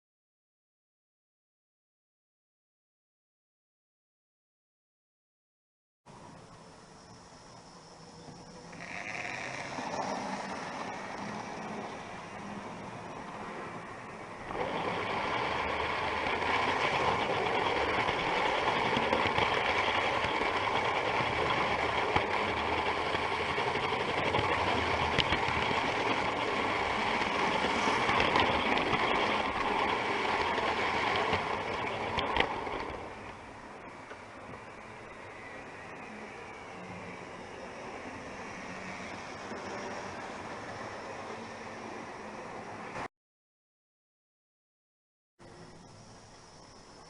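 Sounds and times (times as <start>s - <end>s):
model train running on track: 6.1s - 43.1s.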